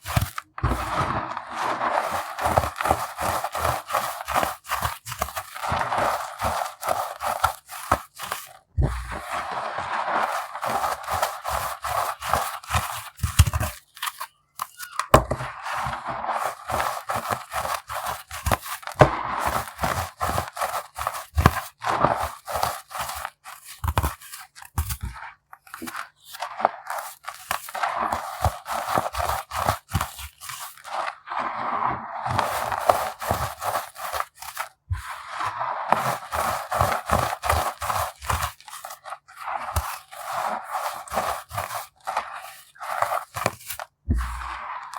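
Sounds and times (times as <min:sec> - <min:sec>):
pebbles crunching and crackling: 0:00.0 - 0:44.9.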